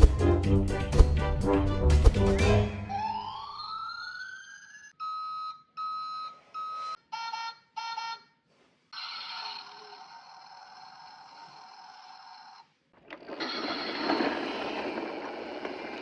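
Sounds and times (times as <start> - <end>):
siren-like sliding tones: 2.3 - 4.9
alarm-like beeping: 2.4 - 5.5.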